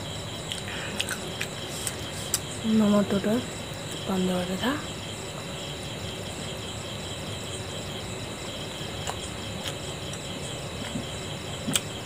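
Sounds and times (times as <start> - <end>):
insects chirping: 0.0 - 12.0
mouth clicks and smack: 0.5 - 2.4, 11.6 - 12.0
person chewing food: 0.5 - 2.4, 9.0 - 10.2.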